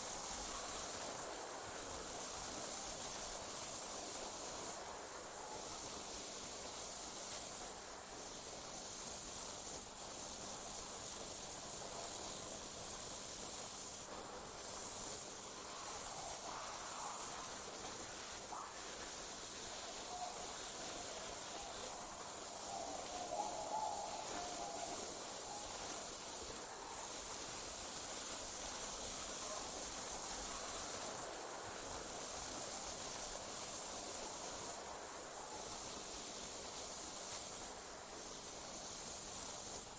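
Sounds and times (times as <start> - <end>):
crickets trilling: 8.3 - 34.8, 35.4 - 39.9.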